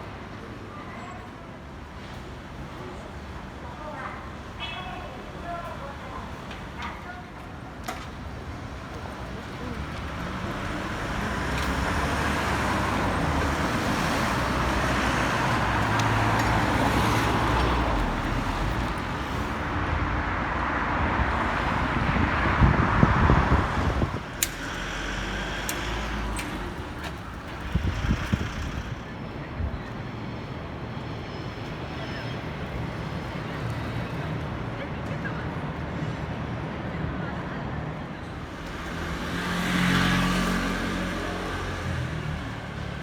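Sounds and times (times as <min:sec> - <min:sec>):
road traffic passing: 0:01.7 - 0:43.0
sharp clicks: 0:24.3 - 0:29.0.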